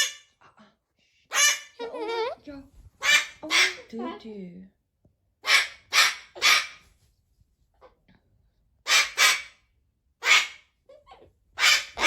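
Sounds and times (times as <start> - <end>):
cockatoo squawking: 3.0 - 3.9, 5.4 - 6.8, 8.8 - 9.6, 10.2 - 10.7, 11.6 - 12.0.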